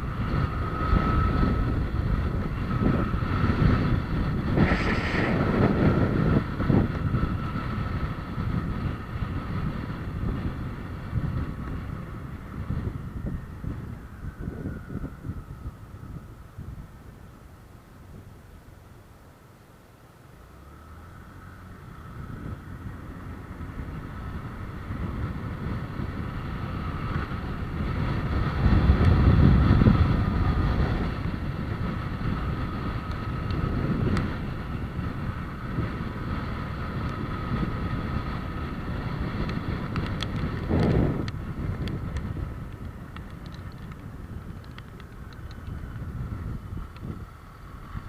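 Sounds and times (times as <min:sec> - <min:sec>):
road vehicle rumble: 0:00.0 - 0:48.0.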